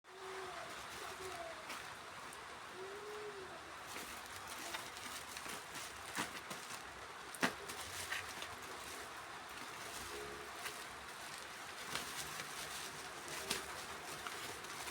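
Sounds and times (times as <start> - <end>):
dove cooing: 0.1 - 2.0, 2.6 - 4.8.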